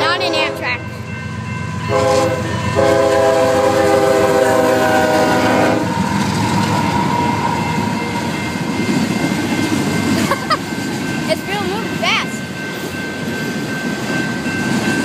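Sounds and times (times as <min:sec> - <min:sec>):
train horn chord: 0:00.0 - 0:01.1, 0:01.8 - 0:06.1.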